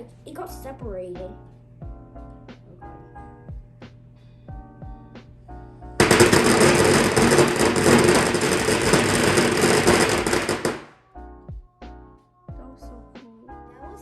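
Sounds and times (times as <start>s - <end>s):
firecrackers crackling: 6.0s - 11.0s.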